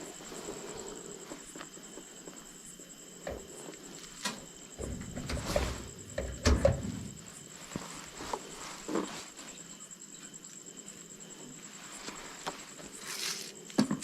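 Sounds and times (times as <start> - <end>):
sharp clicks and knocks: 4.2 - 7.2
low rumbling handling noise: 4.7 - 7.6.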